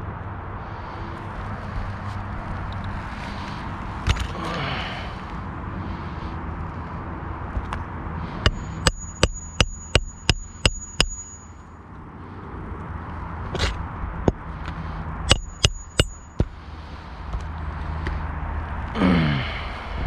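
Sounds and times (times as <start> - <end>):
hammer striking roofing nails: 8.5 - 11.4, 15.3 - 16.6.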